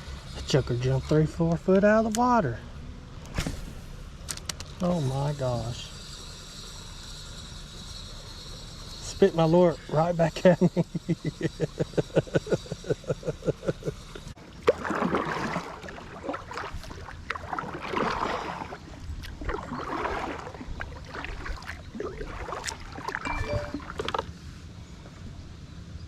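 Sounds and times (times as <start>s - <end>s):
paddle strokes in water: 14.3s - 24.3s.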